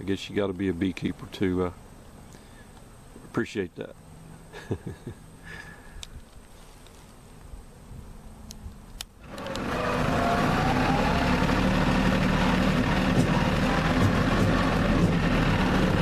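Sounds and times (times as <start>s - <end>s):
tractor diesel engine running: 9.2s - 16.0s.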